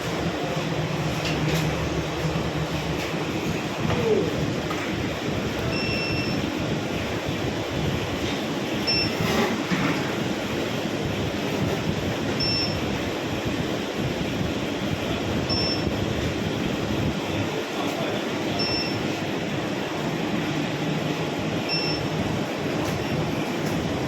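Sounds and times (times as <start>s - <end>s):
short high beep: 5.7s - 6.4s, 18.6s - 19.0s, 21.7s - 22.1s.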